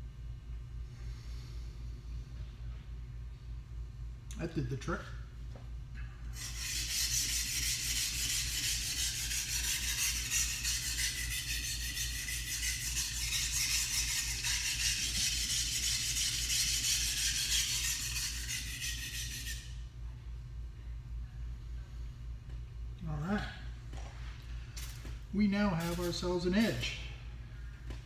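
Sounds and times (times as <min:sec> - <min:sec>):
knife scraping on whetstone: 0:06.4 - 0:19.8.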